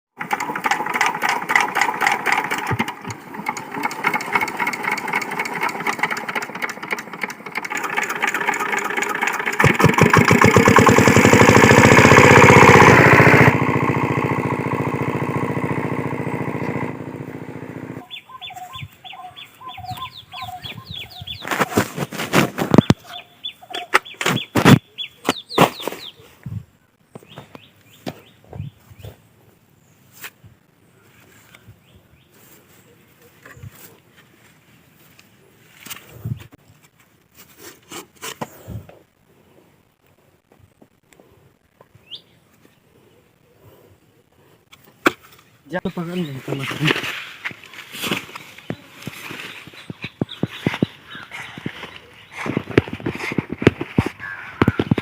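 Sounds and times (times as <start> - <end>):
diesel water pump engine running: 0.2 - 18.0
bird calls: 18.0 - 22.0, 22.6 - 26.4, 42.0 - 44.3, 46.0 - 55.0.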